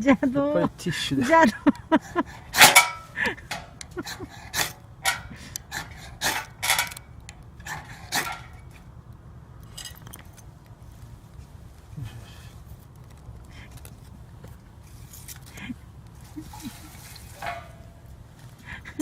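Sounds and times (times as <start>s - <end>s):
steel scraping fire starter rod: 0.9s - 9.0s, 9.6s - 10.5s, 14.8s - 18.5s.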